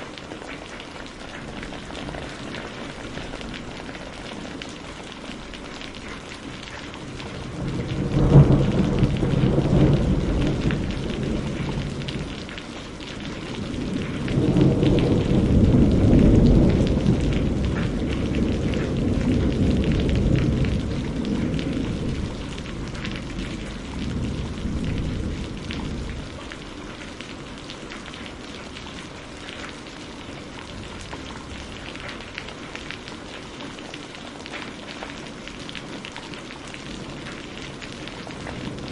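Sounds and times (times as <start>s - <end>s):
steady rain falling: 0.0s - 38.9s
thunder rolling: 7.1s - 26.7s.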